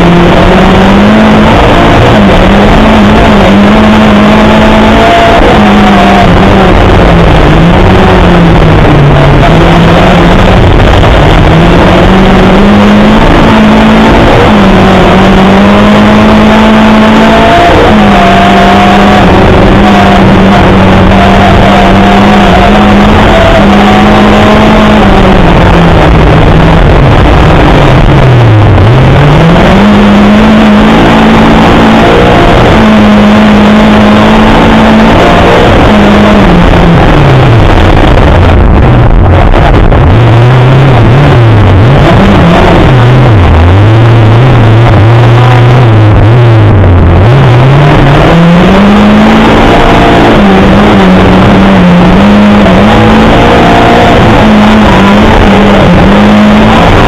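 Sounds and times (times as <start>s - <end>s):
car engine revving high: 0.0s - 57.0s
loud road noise: 0.0s - 57.0s.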